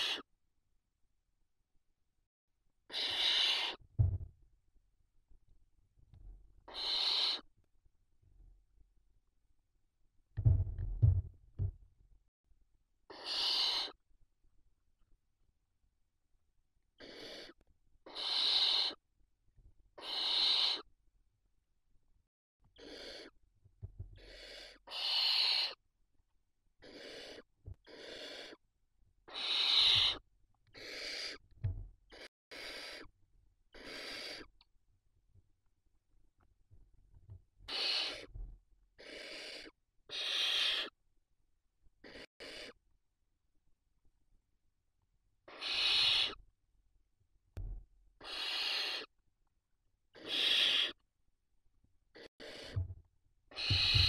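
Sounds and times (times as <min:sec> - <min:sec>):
owl chicks hissing: 0:00.0 - 0:00.3, 0:02.9 - 0:03.8, 0:06.7 - 0:07.5, 0:13.1 - 0:14.0, 0:17.0 - 0:19.0, 0:20.0 - 0:20.9, 0:22.8 - 0:23.4, 0:24.2 - 0:25.8, 0:26.8 - 0:28.6, 0:29.2 - 0:31.4, 0:32.1 - 0:33.1, 0:33.7 - 0:34.6, 0:37.7 - 0:38.3, 0:39.0 - 0:41.0, 0:42.0 - 0:42.8, 0:45.4 - 0:46.4, 0:48.2 - 0:49.1, 0:50.1 - 0:51.0, 0:52.1 - 0:52.8, 0:53.5 - 0:54.0.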